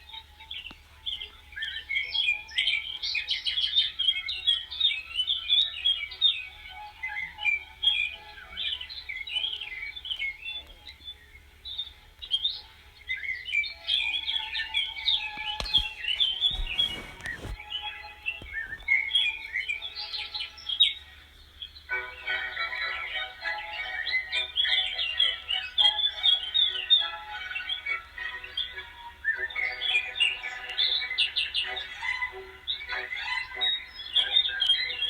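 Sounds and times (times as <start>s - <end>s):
music: 0.0s - 35.0s
small birds chirping: 0.0s - 35.0s
rustling: 14.4s - 19.1s.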